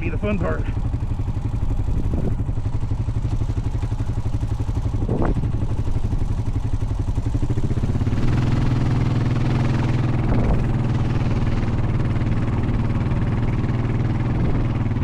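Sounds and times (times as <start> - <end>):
atv engine running under load: 0.0 - 15.0.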